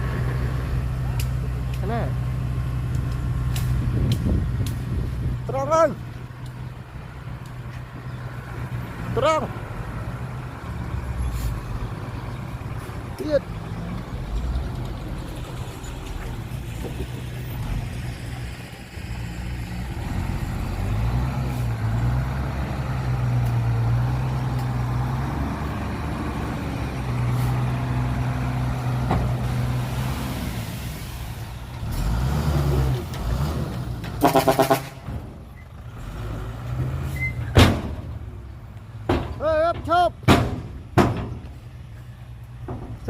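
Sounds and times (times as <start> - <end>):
heavy diesel engine under load: 0.0 - 43.0.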